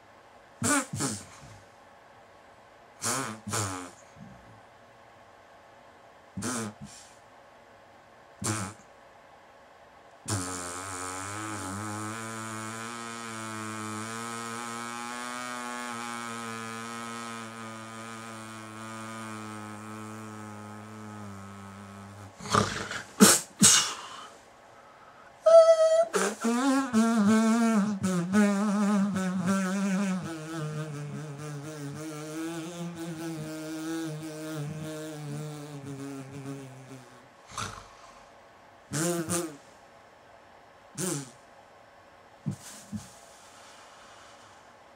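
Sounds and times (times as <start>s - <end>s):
person gasping: 23.6s - 25.4s
person crying out: 25.5s - 26.4s
person moaning: 25.5s - 27.0s.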